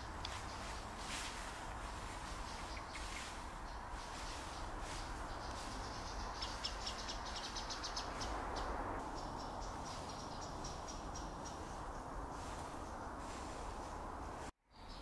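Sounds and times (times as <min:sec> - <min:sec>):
background hiss: 0:00.0 - 0:14.5
bird chips: 0:00.3 - 0:08.4
bird piping notes: 0:02.2 - 0:08.4.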